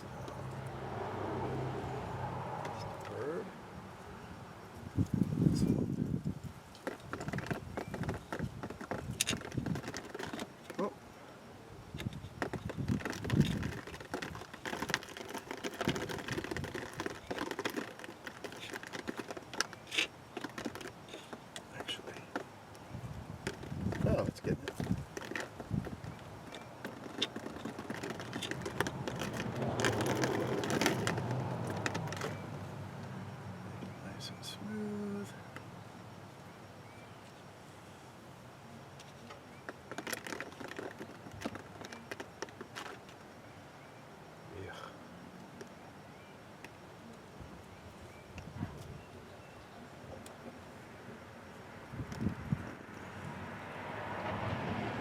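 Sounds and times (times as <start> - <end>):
pipe reamer scraping plastic pipe: 12.0 - 22.4, 23.4 - 32.4.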